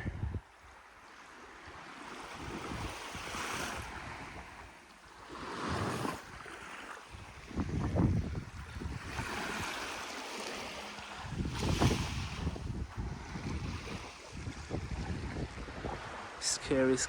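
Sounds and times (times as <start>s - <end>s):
wind buffeting microphone: 0.0s - 0.6s, 1.7s - 4.7s, 5.4s - 10.0s, 11.0s - 16.7s
small waves washing onto beach: 0.0s - 17.0s.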